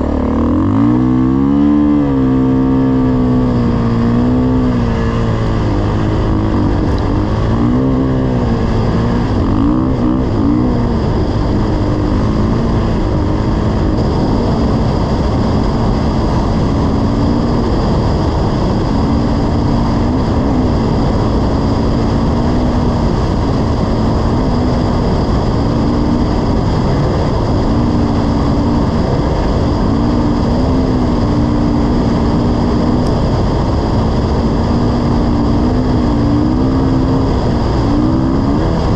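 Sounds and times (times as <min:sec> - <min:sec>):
dirt bike engine running: 0:00.0 - 0:38.9
steady rushing noise: 0:00.0 - 0:38.9.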